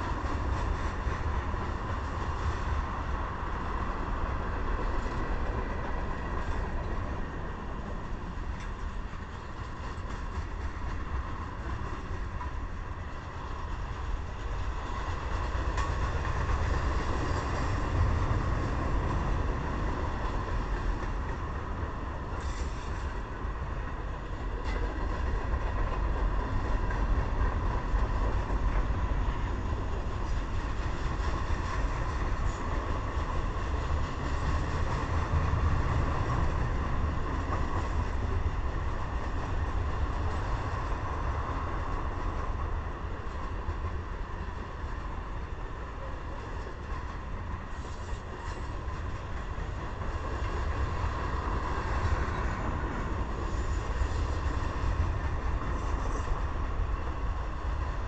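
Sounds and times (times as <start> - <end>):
steel wheels rumbling on rail: 0.0 - 58.0.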